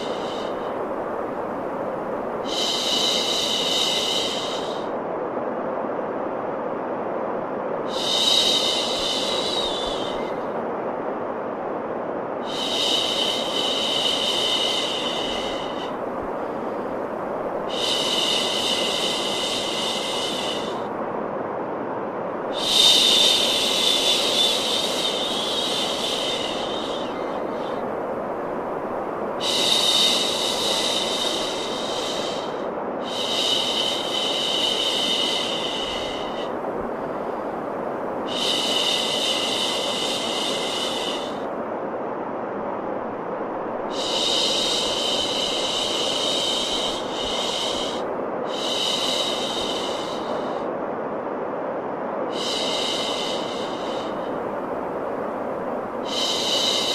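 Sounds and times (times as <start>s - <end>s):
steady white noise: 0.0s - 56.9s.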